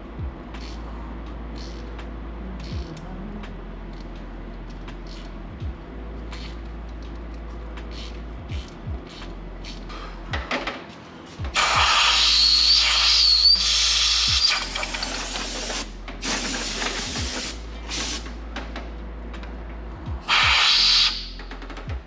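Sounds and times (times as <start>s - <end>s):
air blow gun hissing: 11.6s - 18.4s, 20.3s - 21.4s.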